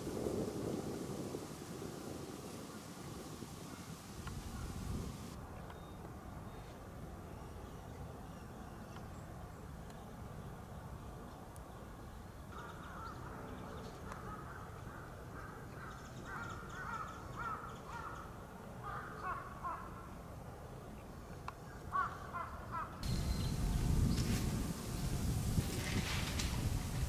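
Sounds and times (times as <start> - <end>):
low rumble: 23.0 - 27.0.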